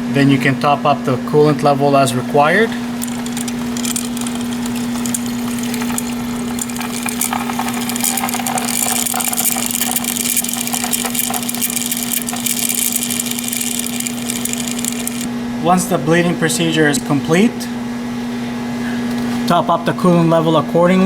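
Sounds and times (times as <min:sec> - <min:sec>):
electric pump humming: 0:01.3 - 0:15.6.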